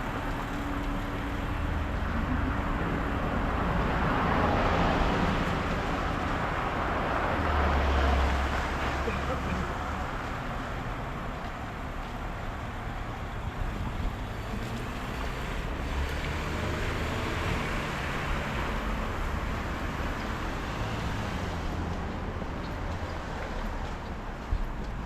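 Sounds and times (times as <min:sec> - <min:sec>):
vehicle passing: 0:13.4 - 0:24.0.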